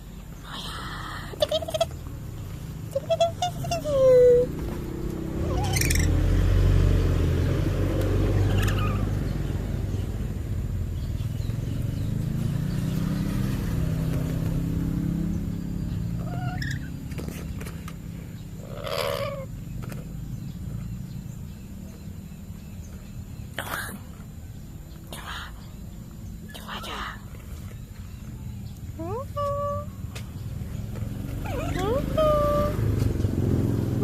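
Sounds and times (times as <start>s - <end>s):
low motor rumble: 0.0s - 34.0s
parrot calls: 1.3s - 2.1s, 2.8s - 6.3s, 8.4s - 9.2s, 16.2s - 17.0s, 18.6s - 19.5s, 31.4s - 32.8s.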